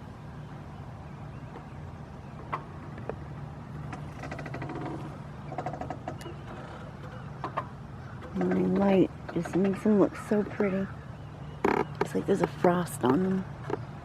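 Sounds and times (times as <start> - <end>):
wheelchair rattling squeak: 4.0 - 7.3, 11.6 - 12.1.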